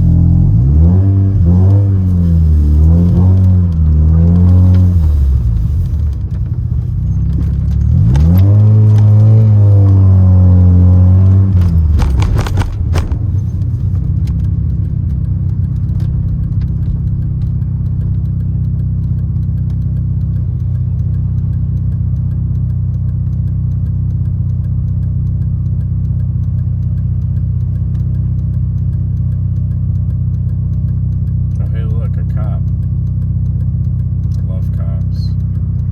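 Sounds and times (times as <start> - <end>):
rotary car engine: 0.0 - 35.9
sharp clicks: 11.2 - 35.9.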